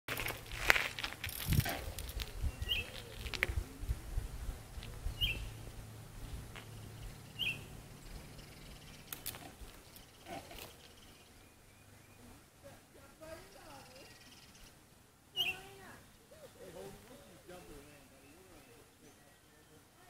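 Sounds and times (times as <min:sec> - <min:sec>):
low rumbling: 0:00.1 - 0:12.4
bird chirps: 0:02.2 - 0:03.3, 0:05.0 - 0:05.6, 0:06.6 - 0:12.4, 0:13.4 - 0:20.0.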